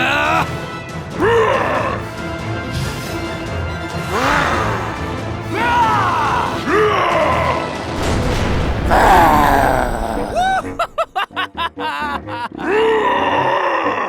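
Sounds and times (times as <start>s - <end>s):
person groaning in pain: 0.0s - 0.6s, 1.2s - 2.2s, 4.0s - 7.8s, 8.8s - 11.2s, 12.5s - 14.0s
background music: 0.0s - 14.0s.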